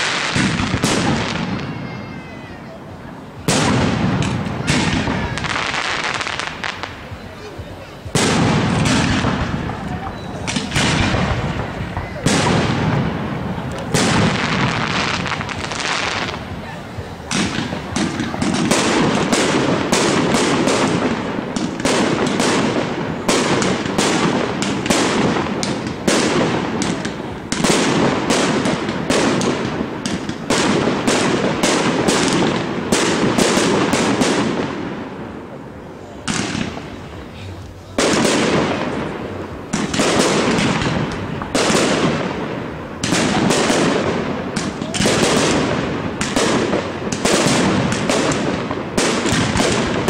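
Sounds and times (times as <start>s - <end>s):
fireworks bursts and crackling bangs: 0.0s - 50.0s.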